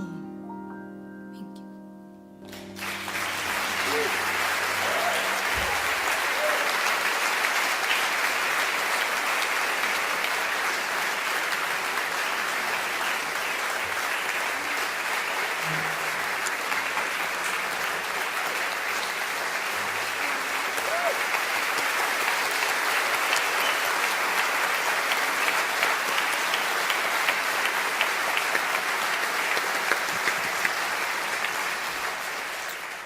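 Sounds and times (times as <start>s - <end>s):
audience applauding: 2.5s - 33.0s
faint cheers: 2.8s - 7.2s, 20.1s - 21.5s.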